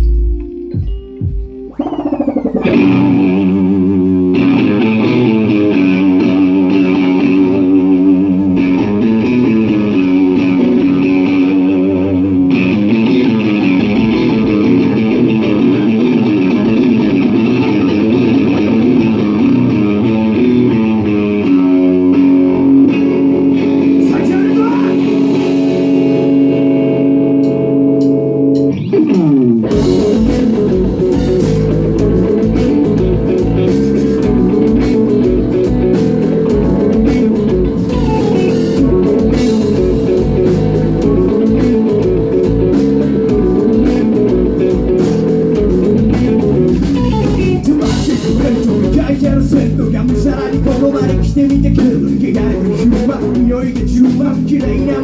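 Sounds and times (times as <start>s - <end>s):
rock band with drums: 0.0s - 55.0s
guitar chord sliding down: 16.9s - 48.9s.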